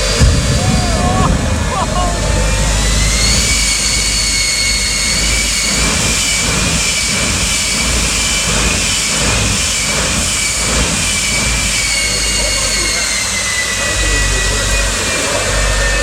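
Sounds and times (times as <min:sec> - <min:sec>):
jet turbine engine whining: 0:00.0 - 0:16.0.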